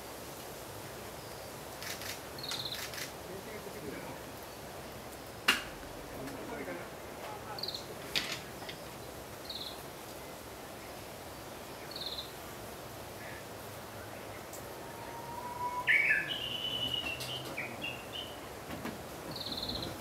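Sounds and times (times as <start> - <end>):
steady background hiss: 0.0 - 20.0
small bird chirping: 1.8 - 3.0, 15.1 - 18.4, 19.3 - 20.0
bird call of several notes: 14.7 - 18.4.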